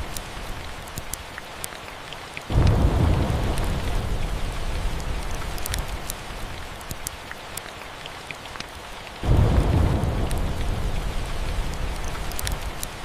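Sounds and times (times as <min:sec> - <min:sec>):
sharp ticks and crackles: 0:00.0 - 0:13.0
steady rain: 0:00.0 - 0:13.0
rolling thunder: 0:02.5 - 0:06.0, 0:09.2 - 0:12.8.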